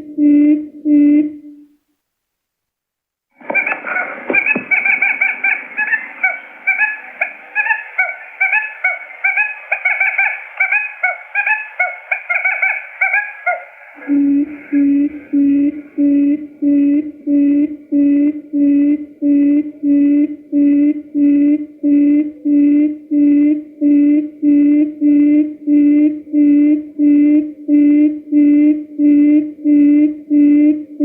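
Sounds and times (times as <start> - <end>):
short chirping calls: 3.4 - 14.8
low hooting notes: 3.4 - 31.0.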